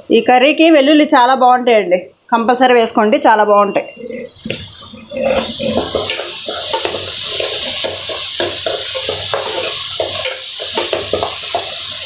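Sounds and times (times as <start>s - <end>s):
food sizzling in oil: 3.9s - 12.0s
spatula scraping pan: 4.0s - 12.0s.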